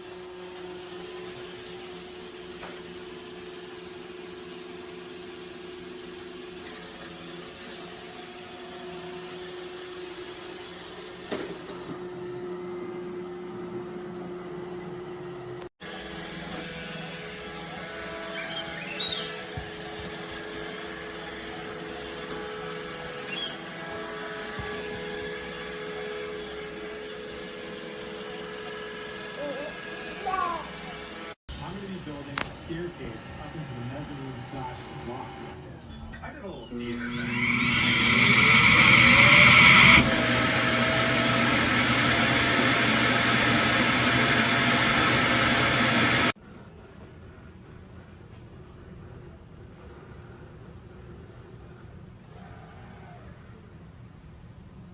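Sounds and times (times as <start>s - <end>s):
faint high whine: 36.6s - 46.3s
robot vacuum whirring: 36.8s - 46.4s.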